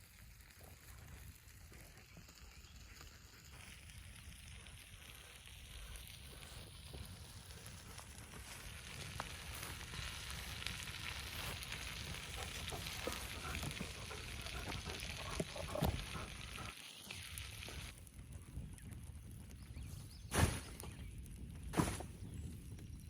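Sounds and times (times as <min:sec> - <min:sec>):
wood fire crackling: 0:00.0 - 0:23.0
sharp pops: 0:20.3 - 0:21.0.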